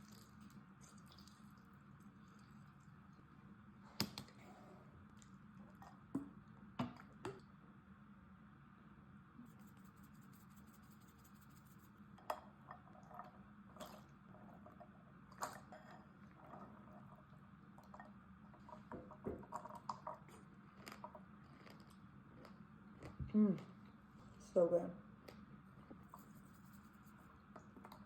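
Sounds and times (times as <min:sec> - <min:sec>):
low steady hum: 0:00.0 - 0:28.0
person chewing a snack: 0:20.3 - 0:23.2.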